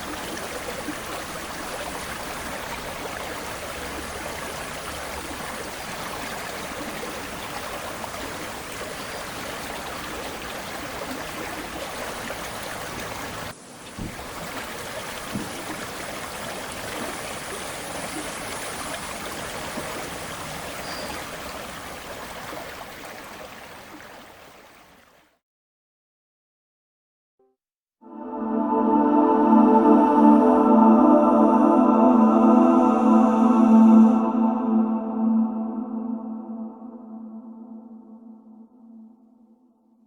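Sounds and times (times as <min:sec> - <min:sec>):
river water flowing: 0:00.0 - 0:25.2.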